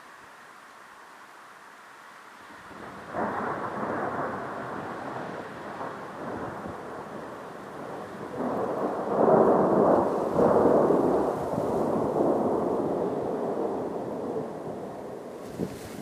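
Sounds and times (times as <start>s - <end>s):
rolling thunder: 2.8s - 15.4s.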